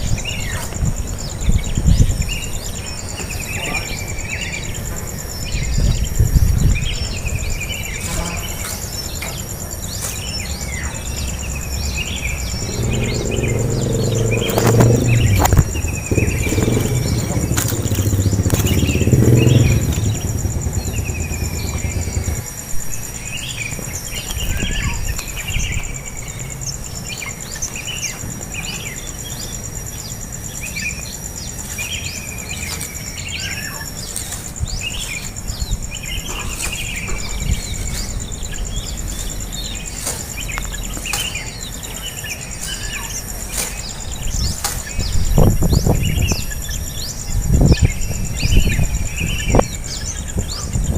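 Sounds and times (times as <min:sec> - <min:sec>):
insect drone: 0:00.0 - 0:50.9
small birds chirping: 0:00.0 - 0:50.9
low rumble: 0:11.8 - 0:23.1.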